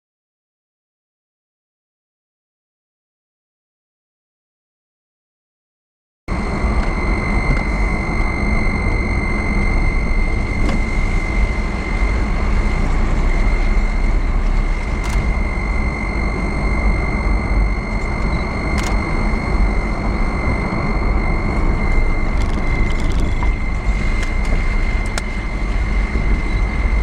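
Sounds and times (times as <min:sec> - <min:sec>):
thin high whine: 0:06.3 - 0:27.0
vehicle road noise: 0:06.3 - 0:27.0.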